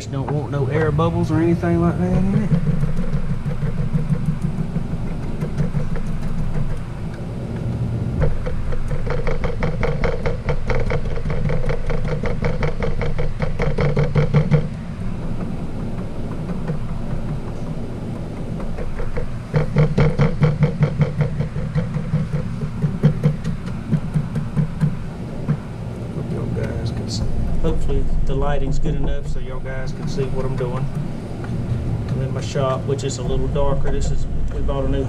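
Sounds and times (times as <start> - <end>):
bubble roller clicking: 0.0 - 34.7
steady low hum: 0.0 - 35.0.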